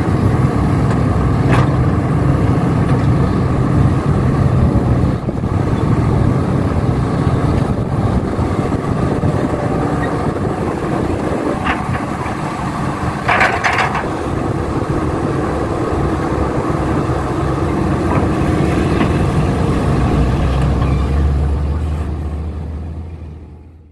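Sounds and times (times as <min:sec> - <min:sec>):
heavy diesel machinery rumble: 0:00.0 - 0:23.9.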